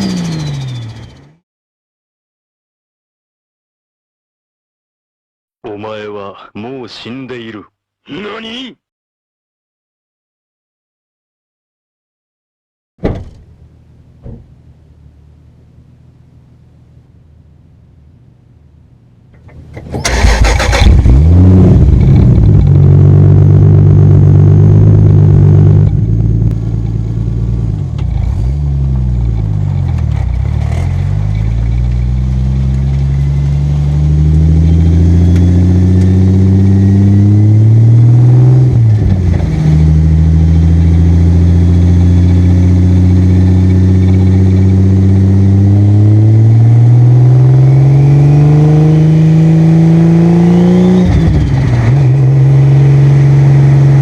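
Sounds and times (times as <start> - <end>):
car engine revving under load: 19.3 - 54.0.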